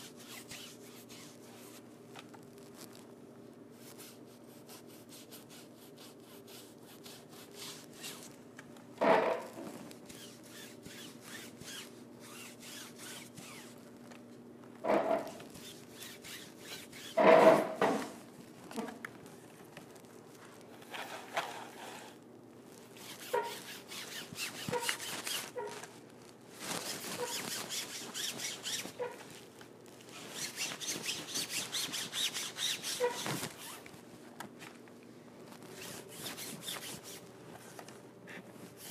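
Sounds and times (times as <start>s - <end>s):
brush scrubbing on cloth: 0.0s - 1.8s, 3.8s - 8.3s, 9.9s - 13.8s, 15.4s - 17.2s, 22.9s - 25.8s, 26.6s - 29.4s
faint steady hum: 0.0s - 38.9s.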